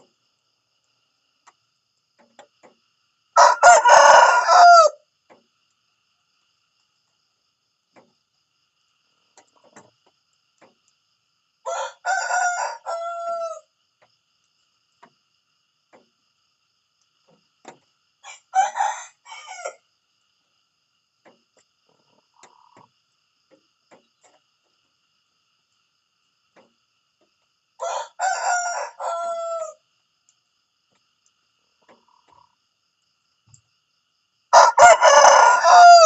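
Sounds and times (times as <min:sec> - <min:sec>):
rooster crowing: 0:03.4 - 0:05.0, 0:11.6 - 0:13.7, 0:18.2 - 0:19.8, 0:27.8 - 0:29.8, 0:34.5 - 0:36.0.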